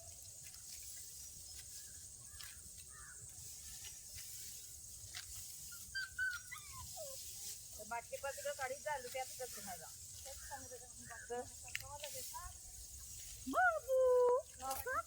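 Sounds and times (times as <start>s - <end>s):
bird calls: 1.2s - 4.2s, 10.2s - 11.6s.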